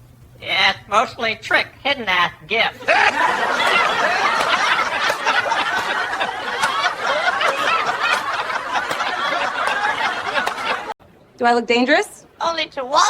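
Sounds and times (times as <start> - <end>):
people laughing together: 2.8 - 11.0.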